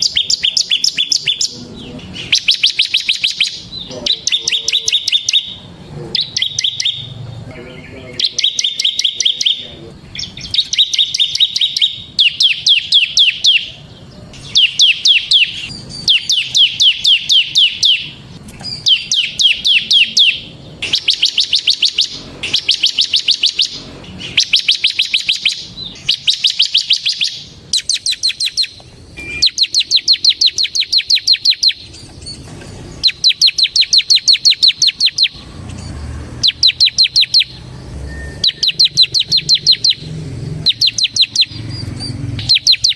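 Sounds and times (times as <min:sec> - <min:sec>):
bird singing rapid high notes: 0:00.0 - 0:42.9.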